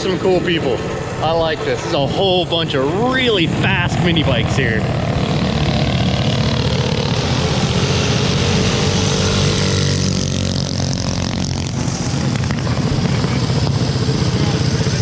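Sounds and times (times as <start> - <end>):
mini bike engines droning: 0.0 - 15.0.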